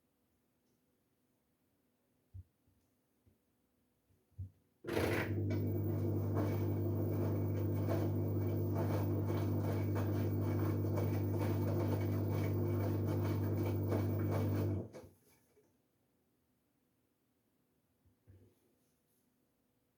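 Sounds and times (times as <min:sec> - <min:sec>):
washing machine humming: 0:04.9 - 0:15.0.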